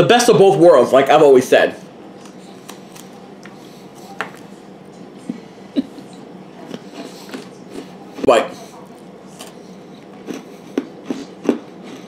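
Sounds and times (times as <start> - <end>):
person chewing crunchy cookie: 6.6 - 12.0.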